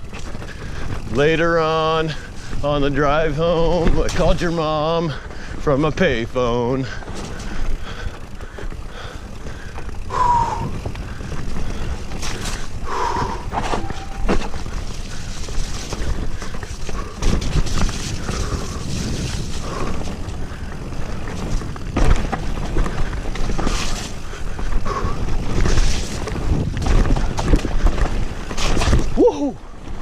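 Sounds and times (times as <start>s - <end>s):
bike knocking and rattling: 0.0s - 30.0s
tyres on muddy trail: 0.0s - 30.0s
wind on microphone: 9.5s - 29.6s.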